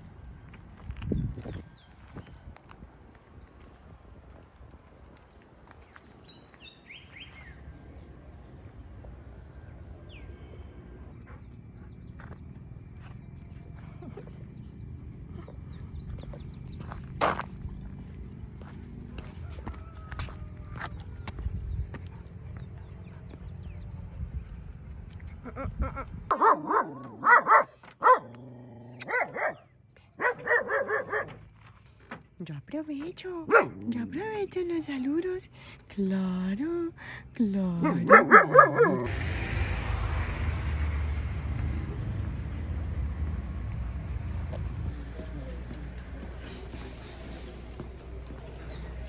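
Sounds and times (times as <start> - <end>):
dog barking: 26.3 - 31.4, 33.5 - 33.9, 37.8 - 39.1
birds trilling: 26.3 - 31.6, 33.4 - 39.1.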